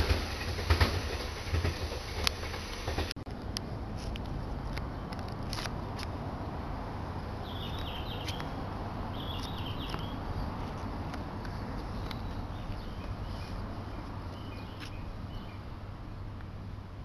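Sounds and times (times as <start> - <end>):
bird chirping: 7.4 - 10.7, 11.5 - 15.8.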